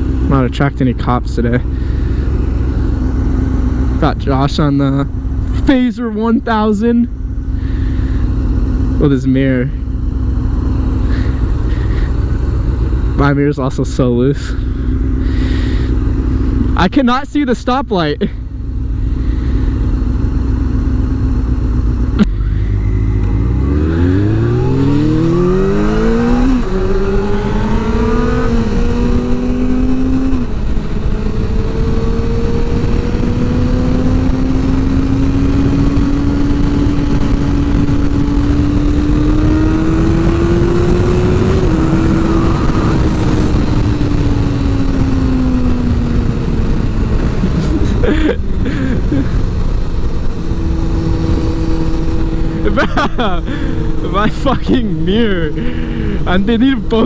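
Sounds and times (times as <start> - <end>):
motorcycle engine revving and shifting: 0.0 - 16.9, 18.2 - 57.0
wind noise: 22.2 - 57.0.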